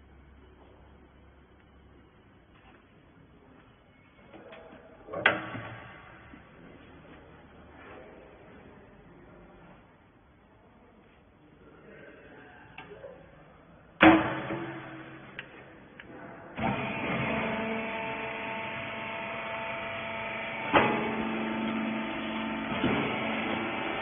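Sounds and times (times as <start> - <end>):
hydraulic power unit humming: 13.9 - 24.0
loud metal knock: 14.0 - 15.4.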